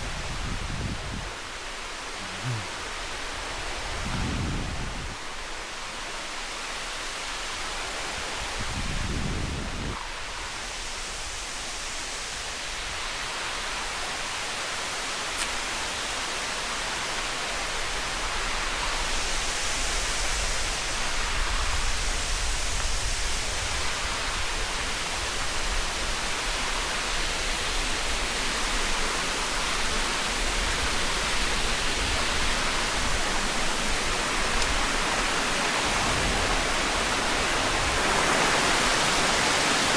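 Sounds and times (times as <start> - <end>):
waterfall rushing: 1.4 - 3.9, 25.9 - 39.9.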